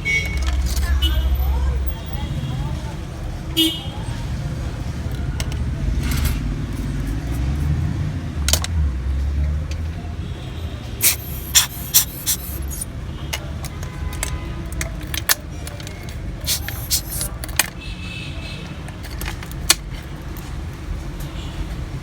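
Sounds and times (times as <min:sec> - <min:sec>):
low rumble of road traffic: 0:00.0 - 0:22.0.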